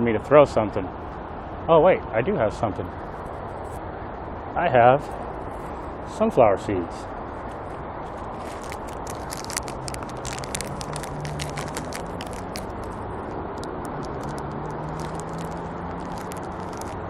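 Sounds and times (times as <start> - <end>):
steady low hum: 0.0 - 17.0
plastic bag crinkling: 7.4 - 17.0.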